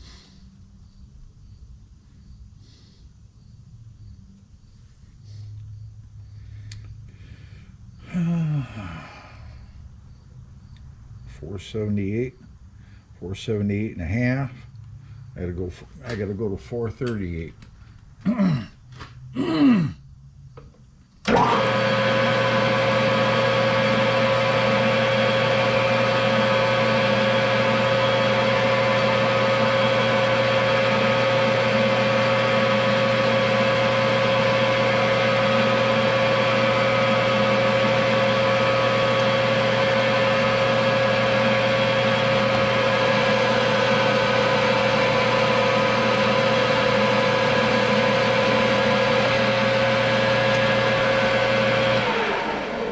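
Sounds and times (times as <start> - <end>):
lathe motor whine and hum: 20.6 - 52.9.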